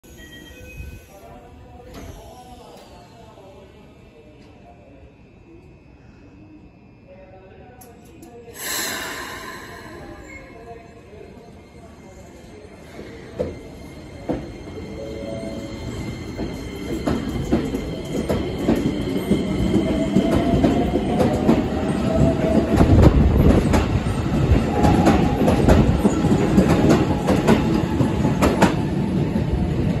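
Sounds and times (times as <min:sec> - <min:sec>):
train rumble: 0:15.4 - 0:30.0.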